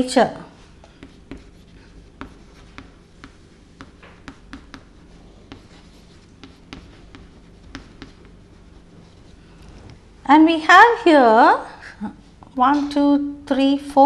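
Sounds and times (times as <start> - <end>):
writing and drawing on a board: 0.6 - 10.0.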